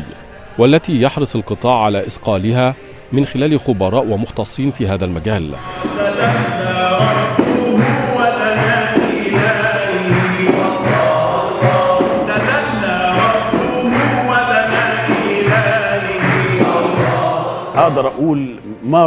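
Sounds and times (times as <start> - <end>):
men singing religious chant: 0.0 - 18.6
hand percussion beat: 5.6 - 18.0.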